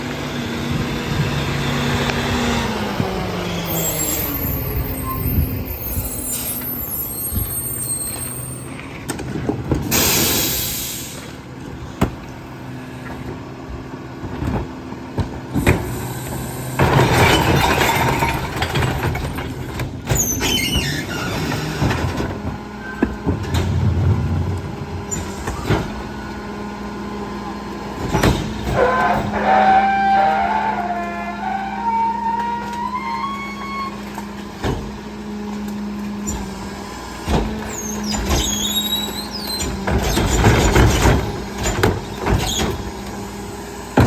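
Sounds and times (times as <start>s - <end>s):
garbage truck engine hum: 0.0s - 44.0s
falling squeal: 3.2s - 9.0s, 15.6s - 18.8s, 20.1s - 21.8s, 28.2s - 34.1s, 37.7s - 41.0s
air hiss: 9.9s - 11.4s.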